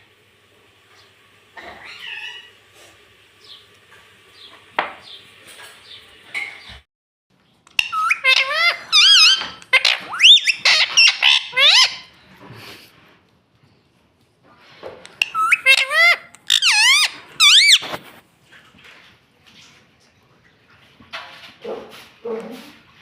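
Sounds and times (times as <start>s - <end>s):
parrot squawking and chirping: 1.6s - 2.6s, 7.7s - 12.2s, 15.1s - 18.0s.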